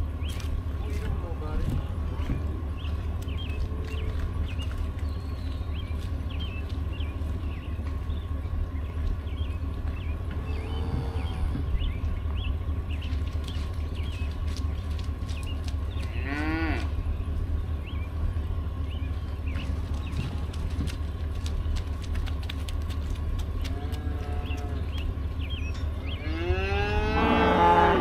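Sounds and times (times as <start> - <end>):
steady low rumble: 0.0 - 28.0
cattle mooing: 10.5 - 11.7, 16.1 - 17.0, 23.7 - 24.9, 26.1 - 28.0.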